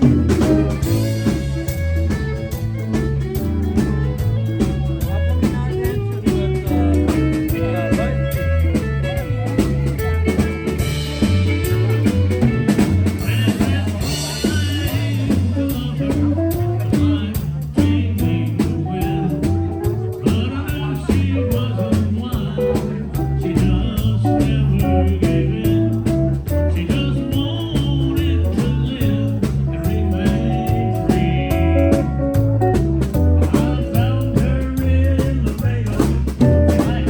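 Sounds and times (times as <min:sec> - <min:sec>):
fiddle: 0:00.0 - 0:27.6
bass: 0:00.0 - 0:37.0
drum kit beat: 0:00.0 - 0:37.0
lead guitar: 0:00.0 - 0:37.0.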